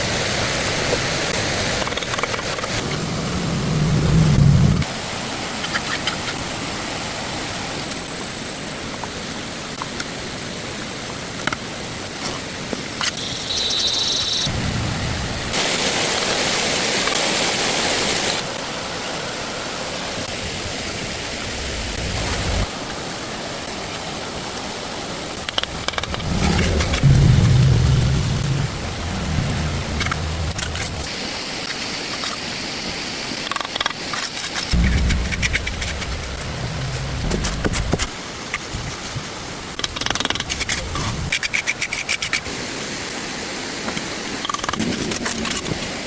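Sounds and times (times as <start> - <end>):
rushing water: 0.0 - 46.0
loud hiss: 25.7 - 31.7.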